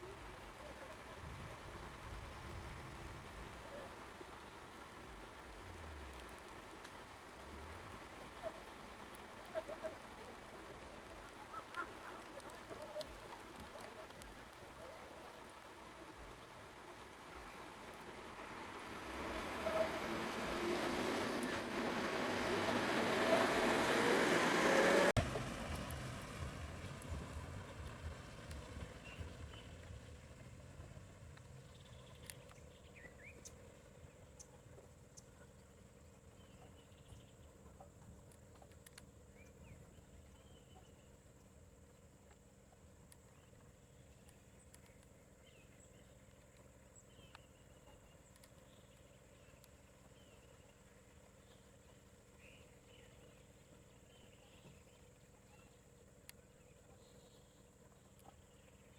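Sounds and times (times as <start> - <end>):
low uneven rumble: 0.0 - 44.6
faint chirps and clicks: 3.5 - 16.6, 27.8 - 58.9
road noise hiss: 15.5 - 31.9
vehicle engine running: 18.9 - 31.6.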